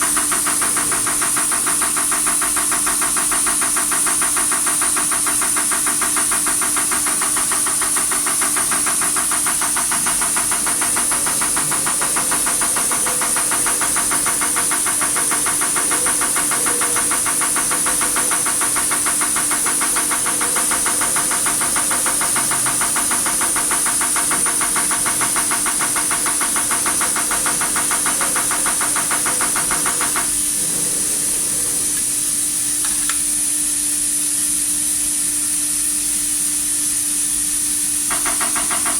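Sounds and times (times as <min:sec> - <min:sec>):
injector rapid ticking: 0:00.0 - 0:33.1, 0:38.1 - 0:38.9
steady hum: 0:06.9 - 0:33.6.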